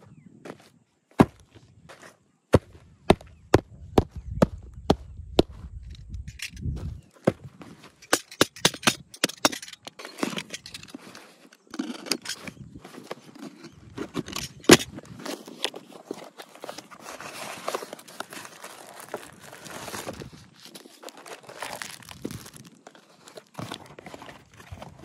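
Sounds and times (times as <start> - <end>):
handling clicks and taps: 8.0 - 12.5.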